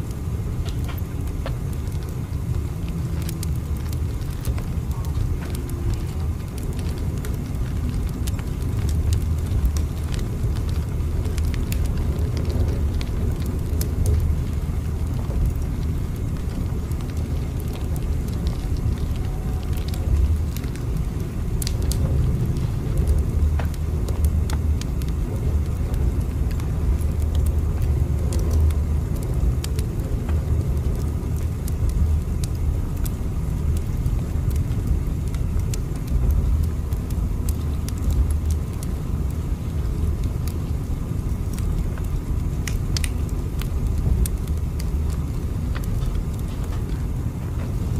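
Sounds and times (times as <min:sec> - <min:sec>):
faint crackles and ticks: 0:00.0 - 0:47.9
train running rumble: 0:00.5 - 0:38.8.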